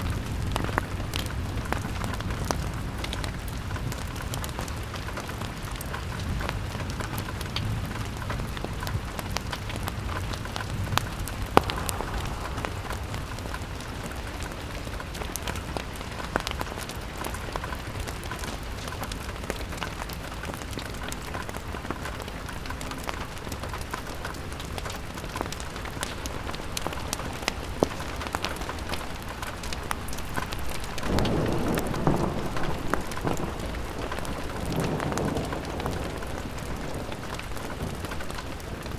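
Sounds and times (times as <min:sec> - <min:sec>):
rain pattering on a window: 0:00.0 - 0:38.9
low rumble: 0:11.1 - 0:14.8.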